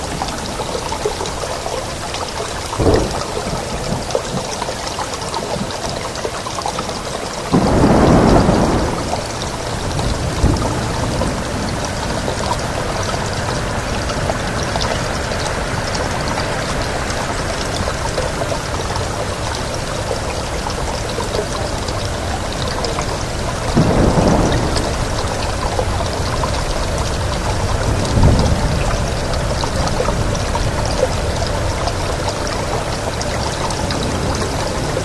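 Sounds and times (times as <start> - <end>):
heavy rain: 0.0 - 35.0
thunder clap rumbling: 2.8 - 4.2, 7.5 - 14.5, 22.5 - 31.0.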